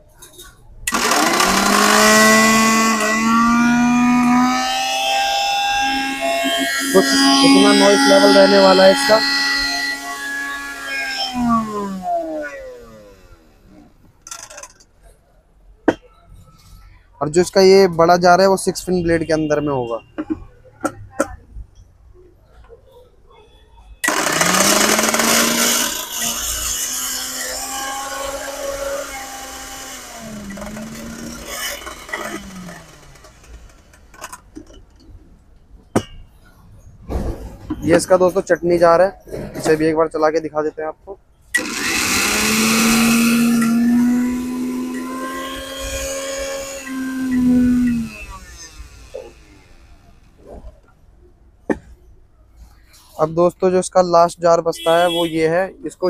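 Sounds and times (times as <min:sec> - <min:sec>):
mixer grinder motor whine: 0:00.9 - 0:14.7, 0:24.0 - 0:34.4, 0:41.6 - 0:50.4.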